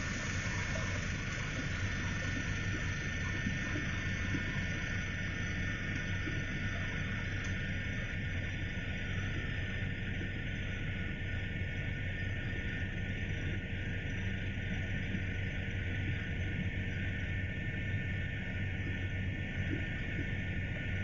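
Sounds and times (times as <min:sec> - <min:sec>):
high thin whine: 0:00.0 - 0:05.9.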